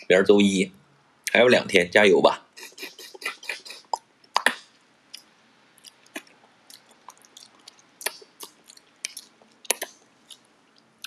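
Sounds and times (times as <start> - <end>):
mouth clicks and smacks chewing: 2.6 - 10.9.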